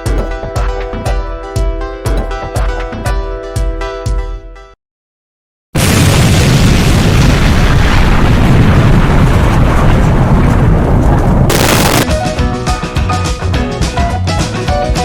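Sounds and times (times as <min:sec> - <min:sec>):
wind buffeting microphone: 0:08.3 - 0:12.0.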